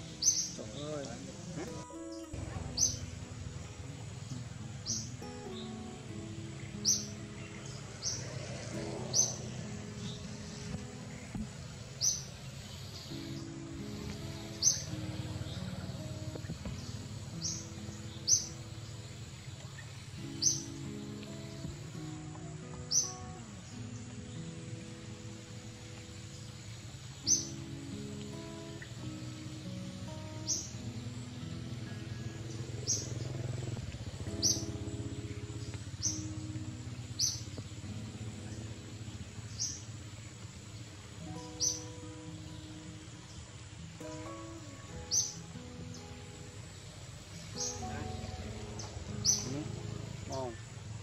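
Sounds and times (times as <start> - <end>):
high bird chirps: 0.0 - 1.1, 1.9 - 21.1, 47.4 - 50.7
bird chirp: 0.0 - 51.0
soft background music: 0.0 - 51.0
soft held notes: 0.0 - 51.0
steady hiss: 0.0 - 51.0.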